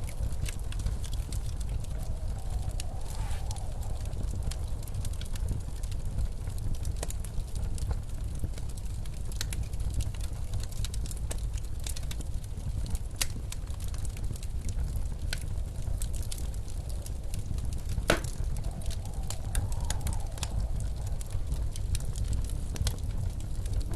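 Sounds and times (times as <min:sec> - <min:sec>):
blizzard wind rumbling: 0:00.0 - 0:23.9
wood fire crackling and popping: 0:00.0 - 0:23.9.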